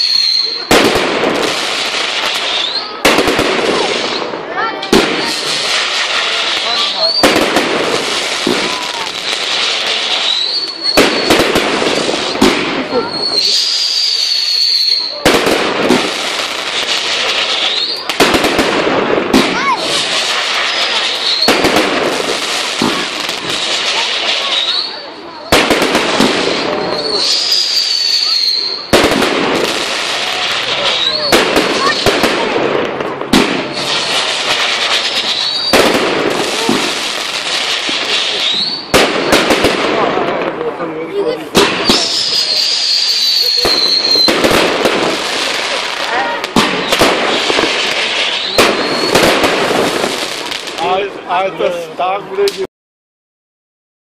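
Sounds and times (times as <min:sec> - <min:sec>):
firework whistle: 0:00.0 - 0:00.9, 0:02.2 - 0:03.0, 0:05.0 - 0:07.4, 0:08.5 - 0:18.2, 0:19.8 - 0:32.3, 0:33.5 - 0:39.5, 0:41.6 - 0:50.6
firework bangs: 0:00.0 - 0:52.7
firework crackling: 0:00.0 - 0:52.7.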